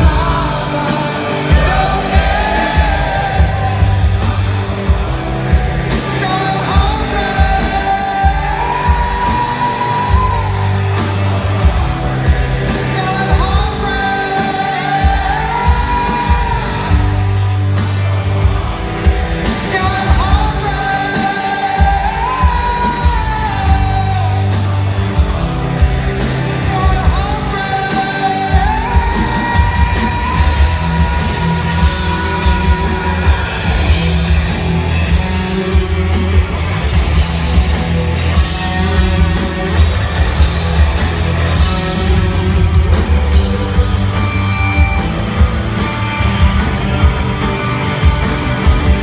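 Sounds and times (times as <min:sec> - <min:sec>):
person singing: 0:00.0 - 0:25.2, 0:25.8 - 0:49.0
bass and guitars: 0:00.0 - 0:49.0
drum beat: 0:01.4 - 0:17.4, 0:28.5 - 0:49.0.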